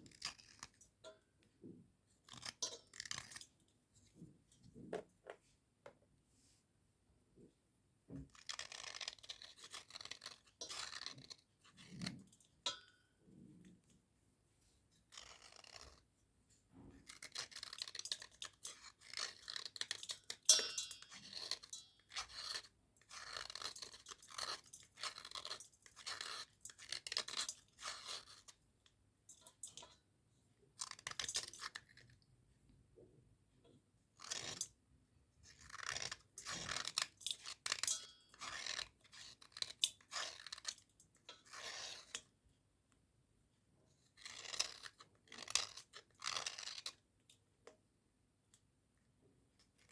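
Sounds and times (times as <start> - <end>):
slate pencils crunching and scraping: 41.4 - 42.2, 44.2 - 47.0.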